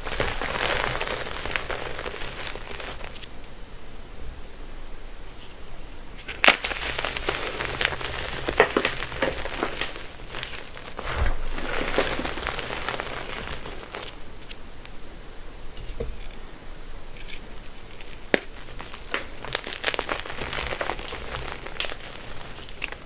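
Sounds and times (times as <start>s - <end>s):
chalk crushing and crumbling: 0.0s - 3.3s, 6.2s - 14.2s, 17.2s - 23.0s
chalk cracking: 0.0s - 3.4s, 6.2s - 14.6s, 17.2s - 23.0s.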